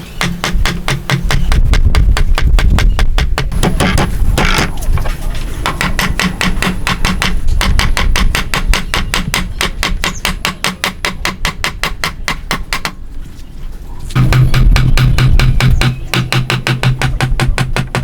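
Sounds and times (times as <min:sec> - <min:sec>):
hammer tapping on wood: 0:00.0 - 0:04.7, 0:05.7 - 0:13.0, 0:14.2 - 0:18.0.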